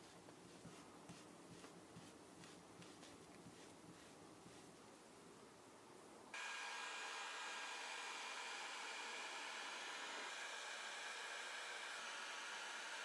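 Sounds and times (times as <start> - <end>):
electric blower hissing: 6.4 - 13.0.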